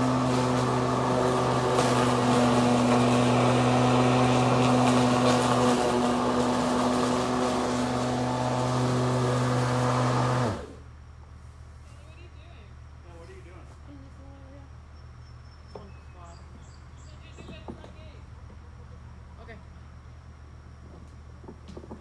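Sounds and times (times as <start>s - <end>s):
electric lawn mower running: 0.0s - 10.8s.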